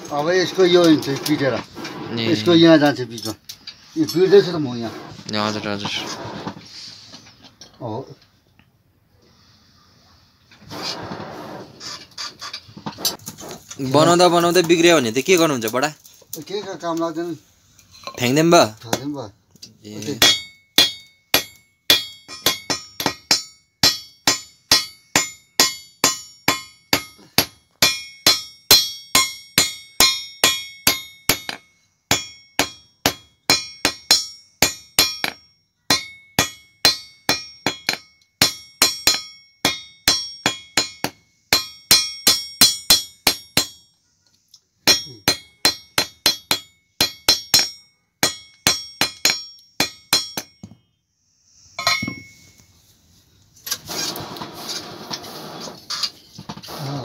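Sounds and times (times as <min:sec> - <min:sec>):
hammer striking iron on anvil: 0:20.2 - 0:43.9, 0:44.8 - 0:50.8, 0:51.8 - 0:52.4.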